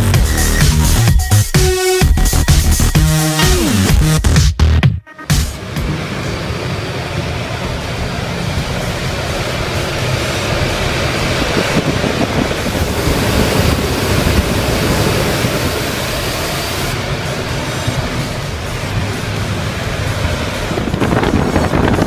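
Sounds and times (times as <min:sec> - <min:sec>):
ventilation fan rushing air: 0:05.3 - 0:22.0.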